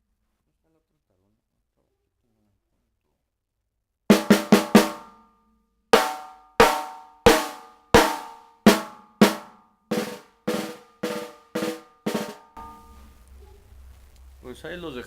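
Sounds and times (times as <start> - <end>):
snare drum strokes ringing: 4.1 - 5.2, 6.0 - 13.2.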